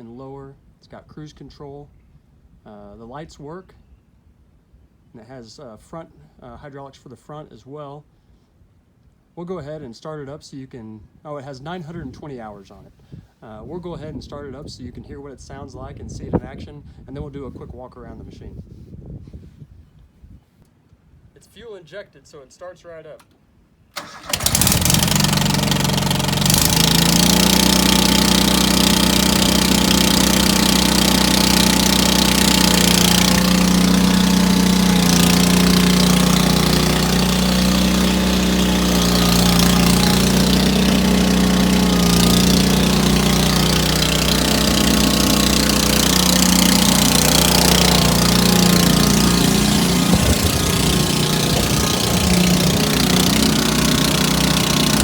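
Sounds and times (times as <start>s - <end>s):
garden tractor engine running: 24.0s - 55.0s.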